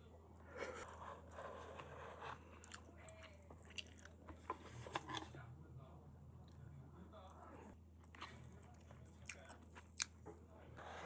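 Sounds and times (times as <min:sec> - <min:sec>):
person chewing crunchy food: 0:00.8 - 0:04.6, 0:08.1 - 0:10.3.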